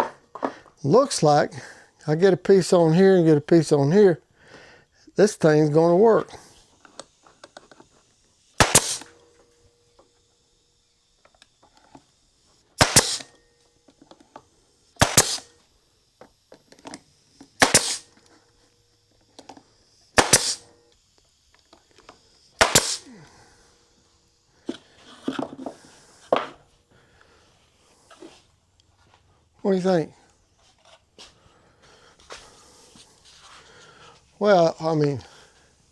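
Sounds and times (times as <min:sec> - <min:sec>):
sharp strikes on wood: 0:08.6 - 0:09.2, 0:12.8 - 0:13.3, 0:15.0 - 0:15.5, 0:17.6 - 0:18.1, 0:20.2 - 0:20.6, 0:22.6 - 0:23.1.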